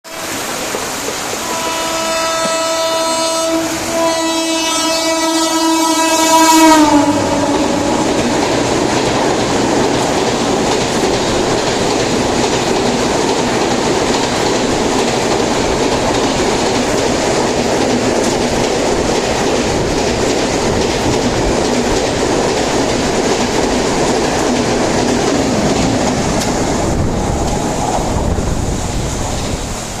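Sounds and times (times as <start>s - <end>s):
train wheels roaring on rails: 0.1s - 30.0s
locomotive horn blasts: 1.4s - 8.2s.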